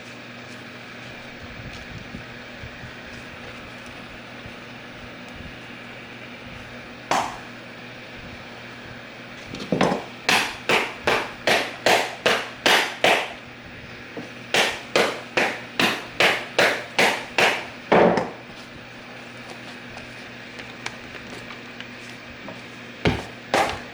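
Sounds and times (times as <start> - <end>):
mallet striking bench: 7.1 - 7.5, 9.8 - 13.4, 14.6 - 18.4.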